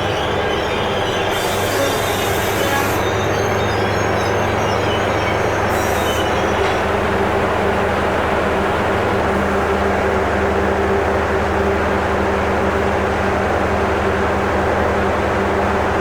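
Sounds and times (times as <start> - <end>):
high-pitched bursts: 0.0 - 7.0
train rumble and hum: 0.0 - 16.0.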